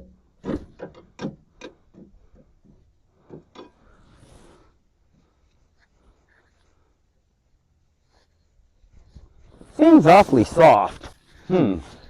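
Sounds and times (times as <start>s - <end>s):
suspension parts knocking and clunking: 0.0s - 4.0s.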